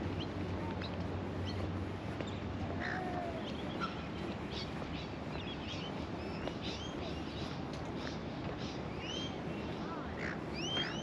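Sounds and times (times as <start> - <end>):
outdoor background rumble: 0.0 - 11.0
small birds chirping: 0.0 - 11.0.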